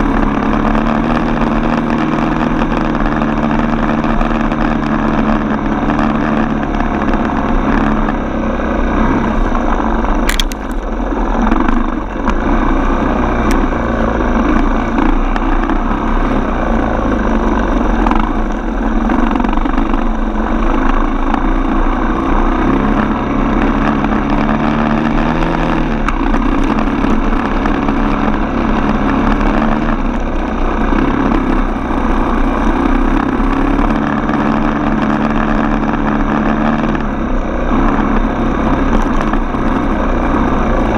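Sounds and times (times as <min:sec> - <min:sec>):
dirt bike engine running: 0:00.0 - 0:40.9
sharp click: 0:10.2 - 0:10.9.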